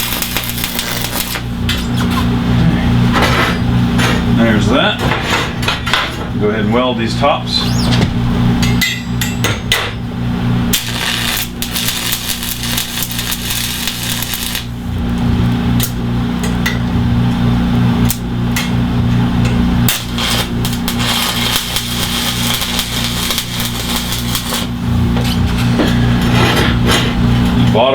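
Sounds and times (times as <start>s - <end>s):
arc welder crackling and sizzling: 0.0s - 4.4s, 10.1s - 26.4s
steady electrical hum: 0.0s - 27.9s.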